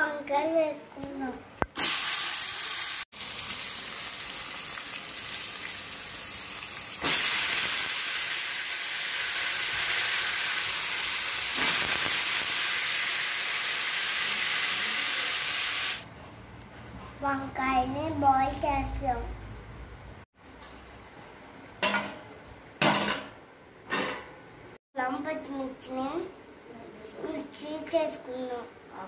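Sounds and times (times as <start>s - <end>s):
oil sizzling in a pan: 1.8s - 16.1s.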